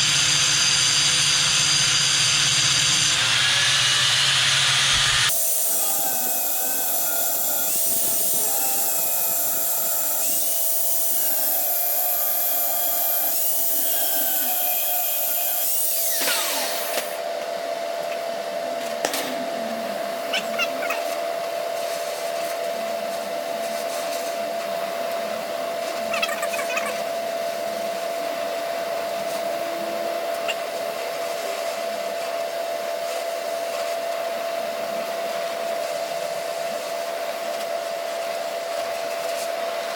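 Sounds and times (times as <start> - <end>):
angle grinder cutting metal: 0.0 - 17.3
grinder winding down: 0.0 - 17.3.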